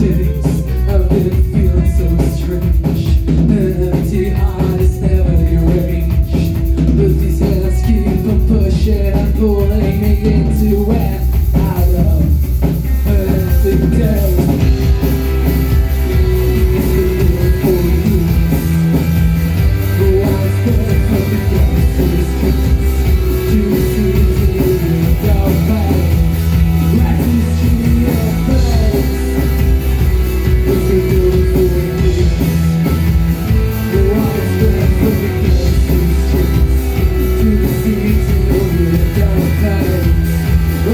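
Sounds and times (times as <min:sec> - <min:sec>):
bass line: 0:00.0 - 0:40.9
drum kit: 0:00.0 - 0:40.9
guitar lines: 0:00.0 - 0:40.9.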